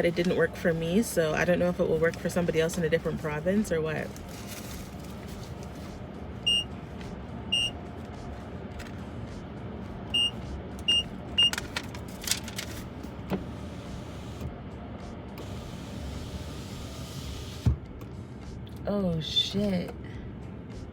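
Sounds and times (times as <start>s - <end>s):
car engine running: 0.0s - 20.9s
keypad beeps: 6.5s - 6.7s, 7.5s - 7.7s, 10.1s - 11.6s.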